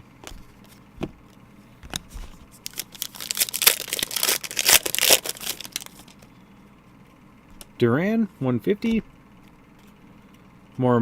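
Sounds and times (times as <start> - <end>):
wrapper tearing and crinkling: 2.6 - 6.1.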